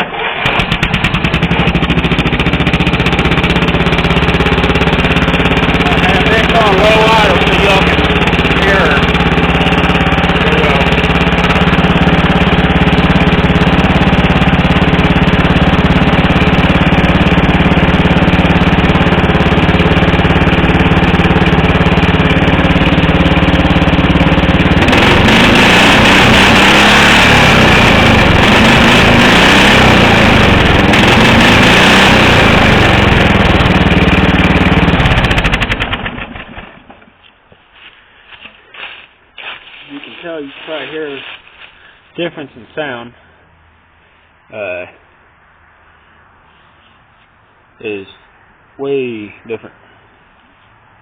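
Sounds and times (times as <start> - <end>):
lawn mower engine running: 0.0 - 42.2.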